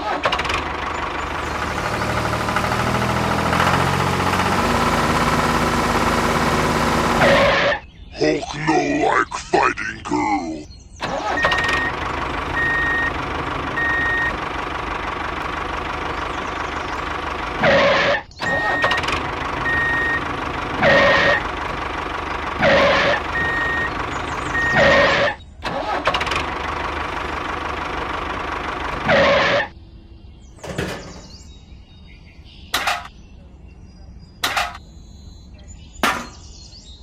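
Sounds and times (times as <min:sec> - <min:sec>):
vehicle engine running: 0:00.0 - 0:07.9, 0:11.0 - 0:31.4.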